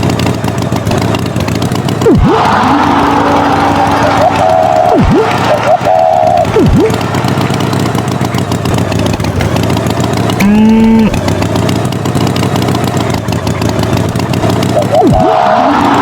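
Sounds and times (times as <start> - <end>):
tractor engine running: 0.0 - 16.0
brief pitched tone: 3.2 - 7.0.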